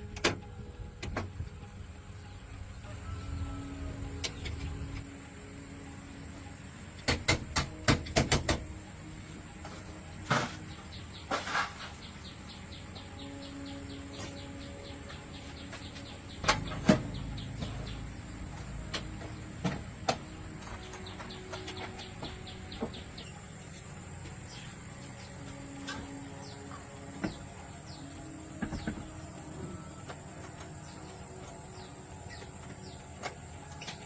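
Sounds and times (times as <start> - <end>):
insect drone: 2.8 - 7.7.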